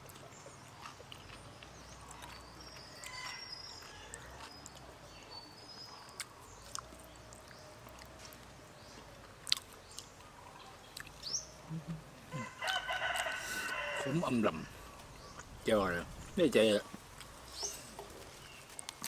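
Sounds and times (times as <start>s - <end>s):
person chewing raw meat: 0.0s - 14.1s
small birds chirping: 0.0s - 19.0s.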